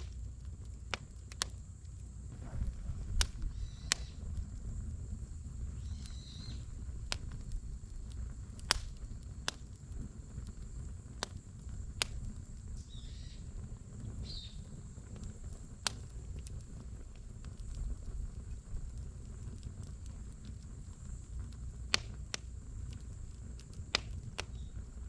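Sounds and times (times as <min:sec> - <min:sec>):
firewood crackling and popping: 0:00.0 - 0:25.0
low steady rumble: 0:00.0 - 0:25.0.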